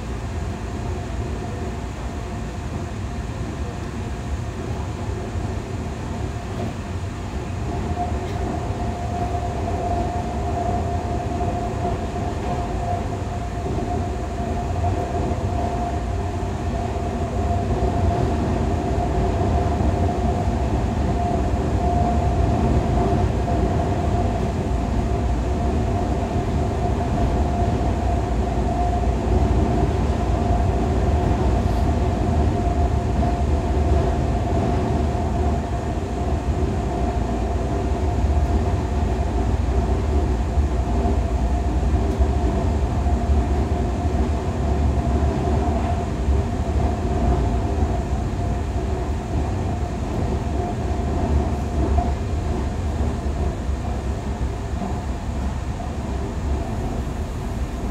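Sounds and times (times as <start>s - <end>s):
train cabin low rumble: 0.0s - 57.9s
mid-pitched hum: 48.1s - 57.9s.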